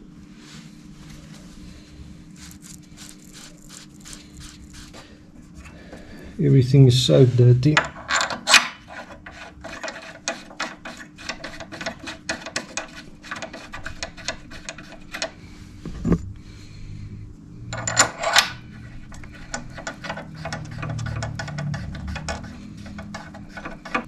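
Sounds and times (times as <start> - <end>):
tool clicks and scrapes: 7.8 - 15.4, 17.8 - 24.0.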